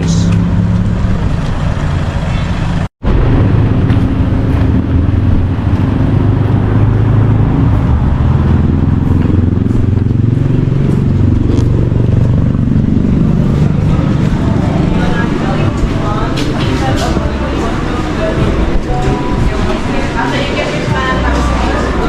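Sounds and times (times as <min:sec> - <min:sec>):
road noise: 0:00.0 - 0:22.0
vehicle engine running: 0:00.0 - 0:22.0.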